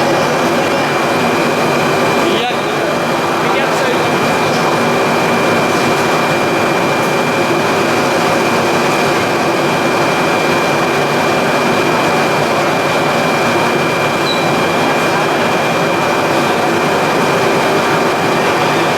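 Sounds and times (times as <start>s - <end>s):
industrial machinery running: 0.0s - 18.9s.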